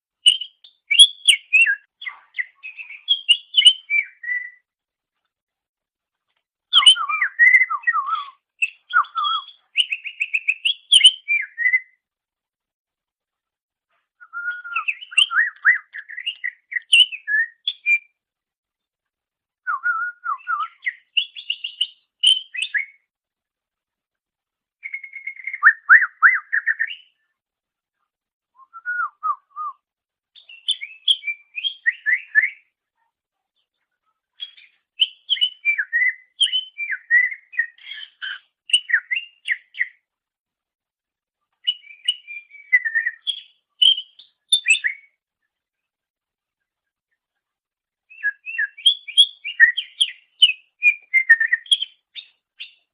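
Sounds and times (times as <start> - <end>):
bird singing whistles and chirps: 0.2 - 4.7, 6.7 - 12.0, 14.2 - 18.2, 19.6 - 23.1, 24.8 - 27.2, 28.6 - 29.8, 30.4 - 32.7, 34.4 - 40.0, 41.6 - 45.2, 48.1 - 52.9.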